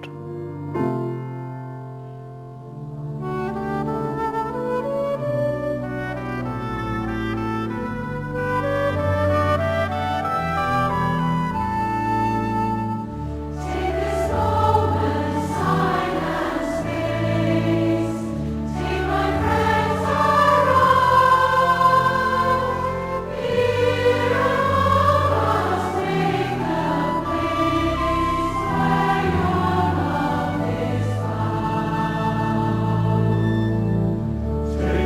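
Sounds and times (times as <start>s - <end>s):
low held instrumental notes: 0.0s - 35.0s
choir singing a hymn: 9.4s - 35.0s.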